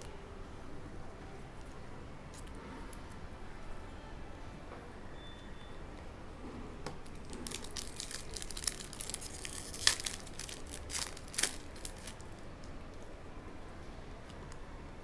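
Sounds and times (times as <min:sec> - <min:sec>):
plastic wrapper tearing and crinkling: 0:07.0 - 0:12.4.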